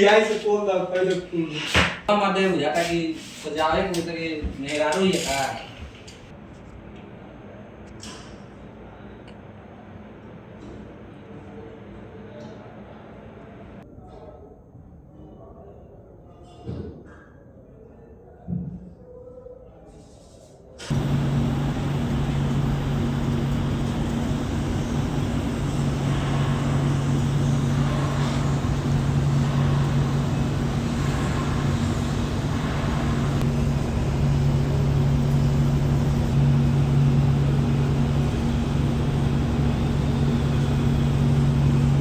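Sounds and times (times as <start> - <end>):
machine hum with low drone: 20.8 - 42.0.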